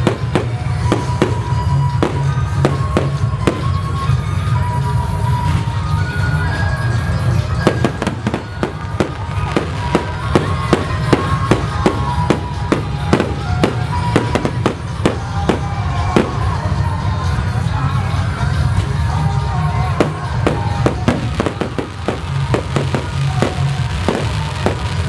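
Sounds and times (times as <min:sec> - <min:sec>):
fireworks bangs: 0:00.0 - 0:04.1, 0:07.5 - 0:16.9, 0:19.8 - 0:25.0.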